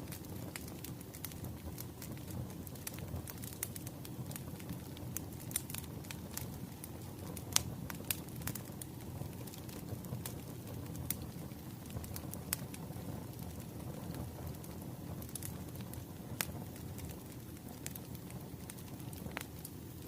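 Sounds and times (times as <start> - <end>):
low rumble of burning logs: 0.0 - 20.0
wood fire crackling and popping: 0.0 - 20.0.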